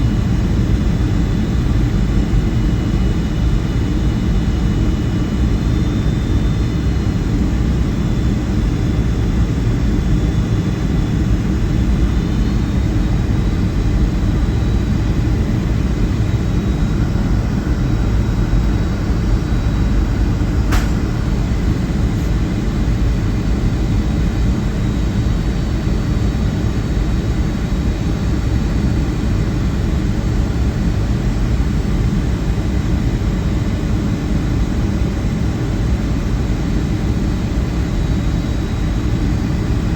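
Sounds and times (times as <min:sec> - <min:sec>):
airliner cabin rumble: 0:00.0 - 0:26.0
sharp click: 0:20.7 - 0:21.2.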